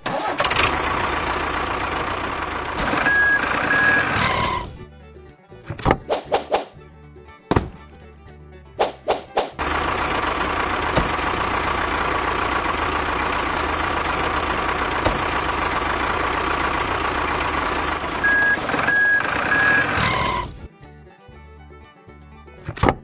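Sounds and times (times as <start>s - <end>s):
truck engine running: 0.0s - 23.0s
reversing beeps: 3.0s - 4.1s, 18.2s - 20.0s.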